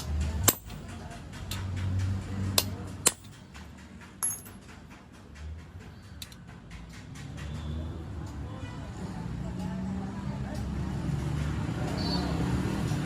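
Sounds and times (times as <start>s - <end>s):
metal tools clinking: 0.0s - 1.6s, 3.0s - 3.6s, 4.2s - 4.8s.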